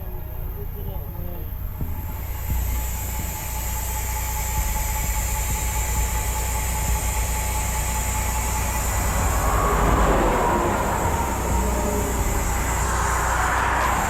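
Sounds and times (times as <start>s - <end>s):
diesel truck engine idling: 5.2s - 14.0s
rushing noise: 7.6s - 14.0s.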